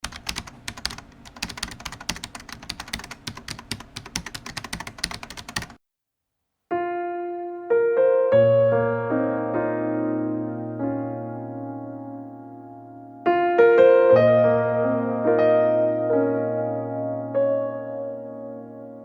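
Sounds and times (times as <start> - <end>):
typing on a keyboard: 0.0 - 5.8.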